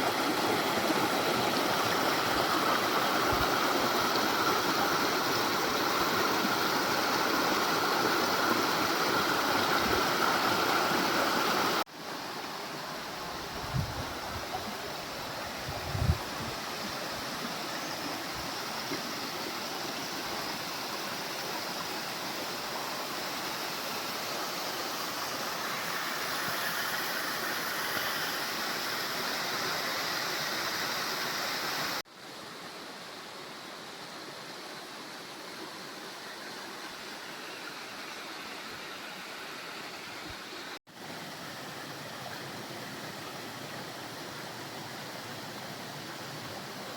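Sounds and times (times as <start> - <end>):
waterfall rushing: 0.0 - 21.1.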